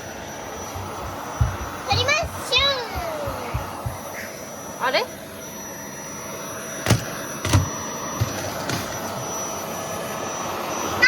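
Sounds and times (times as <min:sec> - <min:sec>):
vacuum cleaner running: 0:00.0 - 0:11.0
nozzle knocking against things: 0:00.6 - 0:04.2.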